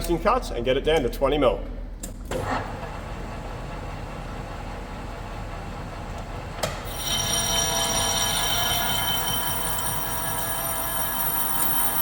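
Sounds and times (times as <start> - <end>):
lathe tool cutting with ringing tones: 6.9 - 12.0
metal lathe running: 6.9 - 12.0.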